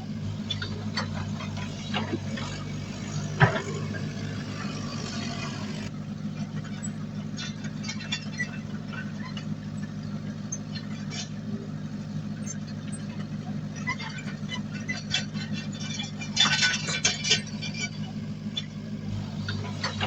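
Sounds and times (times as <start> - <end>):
heavy diesel engine running: 0.0 - 20.0
metal clanks: 0.2 - 5.9, 13.8 - 20.0.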